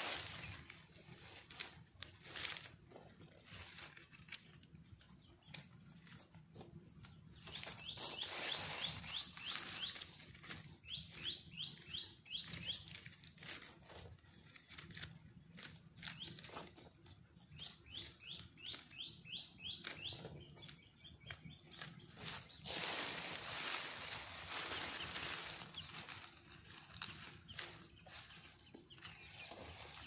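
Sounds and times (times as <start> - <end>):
noisy rustle: 0.0 - 2.8, 7.4 - 11.6, 21.8 - 30.0.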